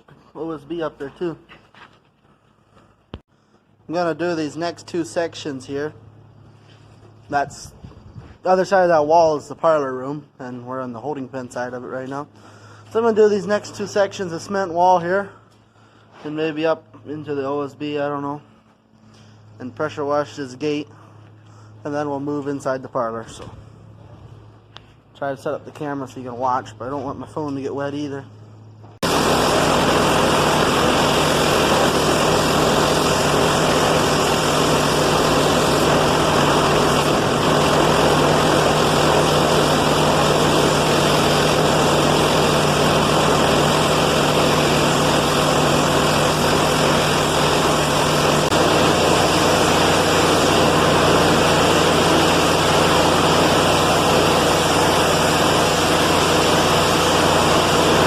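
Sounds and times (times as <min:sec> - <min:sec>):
pressure washer engine running: 0:29.0 - 0:58.0
high-pressure water spray hissing: 0:29.1 - 0:58.0.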